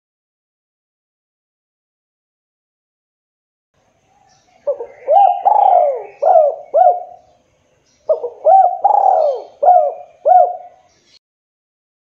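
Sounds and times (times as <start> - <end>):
dove cooing: 4.5 - 7.4, 8.1 - 10.9.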